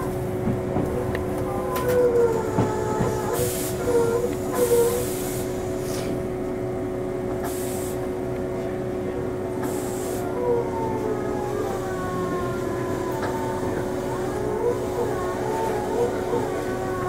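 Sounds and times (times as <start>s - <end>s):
train traction motor hum: 0.0s - 17.0s
short air hisses: 7.4s - 8.0s.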